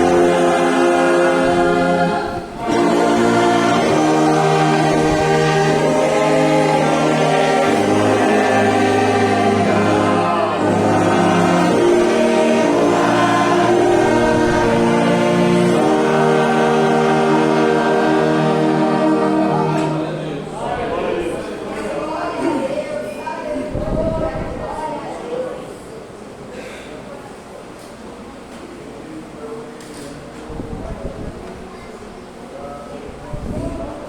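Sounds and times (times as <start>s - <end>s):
church orchestra playing: 0.0s - 20.8s
congregation singing a hymn: 0.0s - 22.4s.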